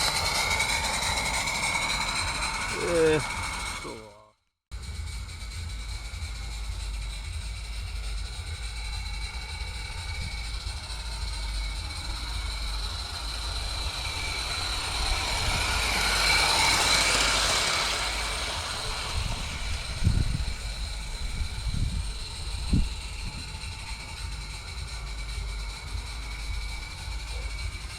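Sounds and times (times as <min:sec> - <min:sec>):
steady low rumble: 0:00.0 - 0:27.9
steam locomotive hissing: 0:00.0 - 0:27.9.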